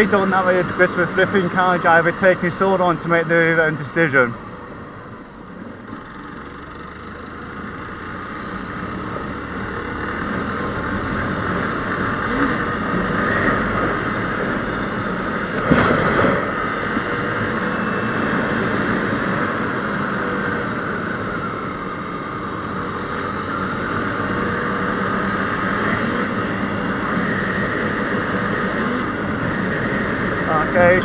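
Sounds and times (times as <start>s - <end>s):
motorcycle engine: 0.0s - 31.0s.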